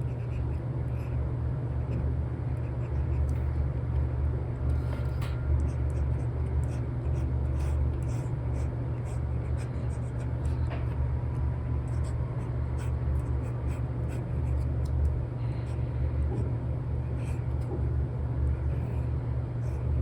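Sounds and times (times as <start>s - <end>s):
stylus scratching and tapping screen: 1.8s - 3.6s, 5.6s - 15.0s.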